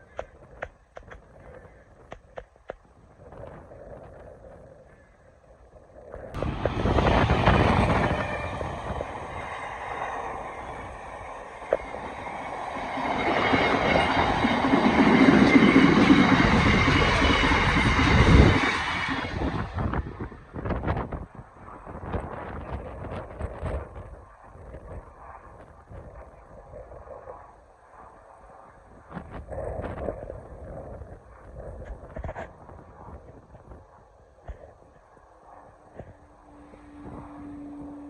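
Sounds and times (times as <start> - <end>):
train passing at speed: 6.3 - 31.7, 35.2 - 38.0.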